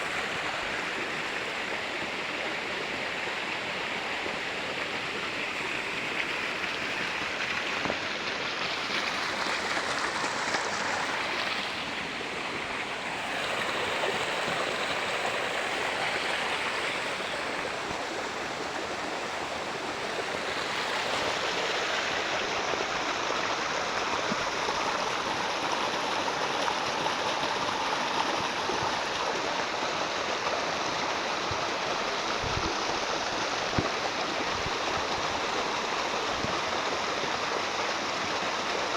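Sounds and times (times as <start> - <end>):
water rushing: 0.0 - 38.9.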